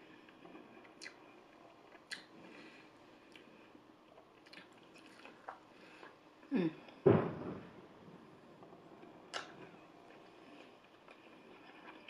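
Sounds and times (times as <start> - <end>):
faint chewing: 0.0 - 6.5, 8.9 - 12.0
wet mouth clicks: 1.0 - 1.2, 2.0 - 2.3.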